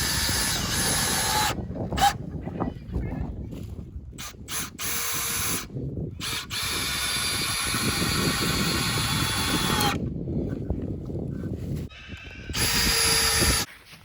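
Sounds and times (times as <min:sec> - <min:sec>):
power drill driving screws: 0:00.0 - 0:02.1, 0:04.2 - 0:10.0, 0:12.5 - 0:13.7.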